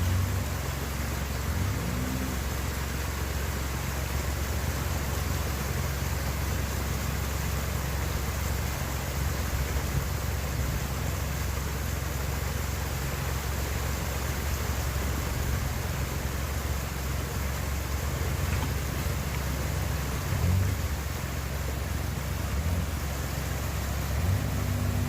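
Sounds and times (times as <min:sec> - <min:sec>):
tyre and road noise: 0:00.0 - 0:25.0
vehicle engine drone: 0:00.0 - 0:25.0.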